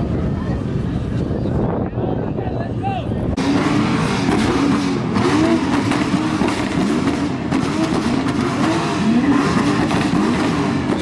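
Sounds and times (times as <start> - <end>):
car engine revving: 3.4 - 11.0.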